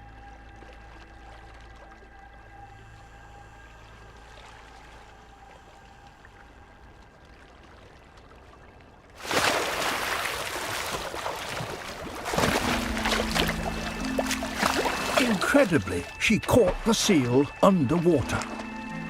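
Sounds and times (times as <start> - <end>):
faint sustained music tones: 0.0 - 9.1, 11.6 - 19.0
churning rushing water: 0.0 - 19.0
loud splash: 9.2 - 17.4.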